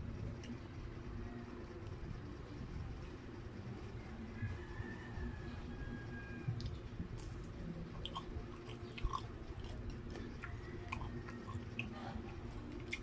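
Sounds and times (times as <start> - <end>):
low steady hum: 0.0 - 13.0
chewing with wet mouth noises: 6.5 - 13.0.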